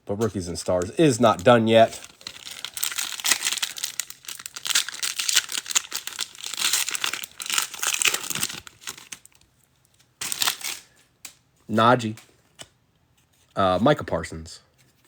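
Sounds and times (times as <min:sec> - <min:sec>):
wrapper tearing and crinkling: 0:01.3 - 0:09.5, 0:10.2 - 0:11.0.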